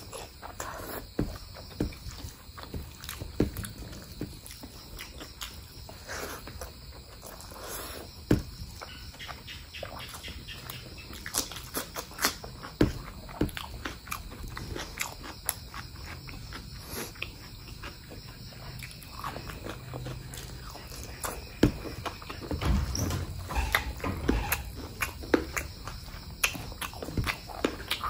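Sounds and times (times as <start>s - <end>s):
person chewing with wet smacks: 0.0s - 22.6s, 24.4s - 28.0s.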